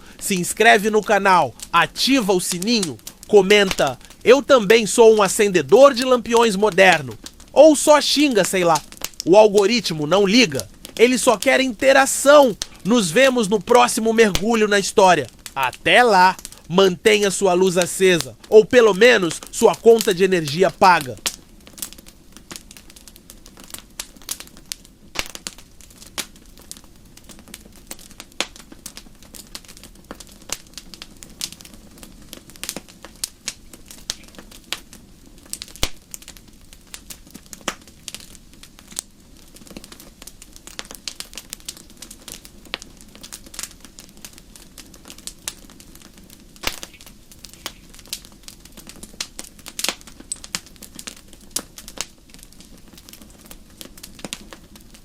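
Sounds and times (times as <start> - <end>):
pops and snaps of burning wood: 1.5 - 1.8, 2.4 - 4.3, 6.4 - 7.6, 8.2 - 9.3, 10.3 - 12.9, 15.2 - 16.7, 20.9 - 55.0
low rush of flame: 4.0 - 4.3.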